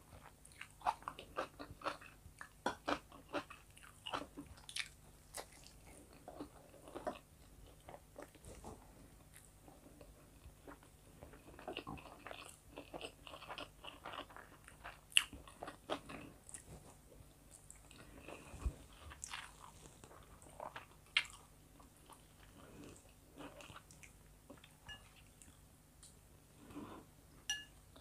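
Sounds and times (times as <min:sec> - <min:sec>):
person chewing food: 0:00.1 - 0:28.0
food crunching: 0:17.5 - 0:25.6.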